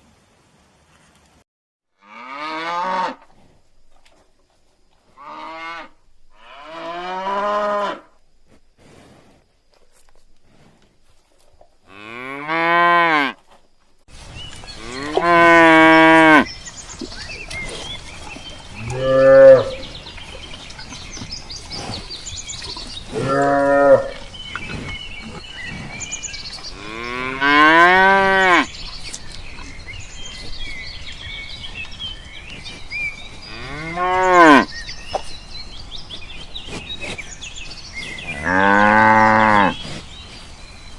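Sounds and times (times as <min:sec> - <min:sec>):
cattle mooing: 0:18.8 - 0:19.9, 0:23.1 - 0:24.3, 0:38.4 - 0:39.8.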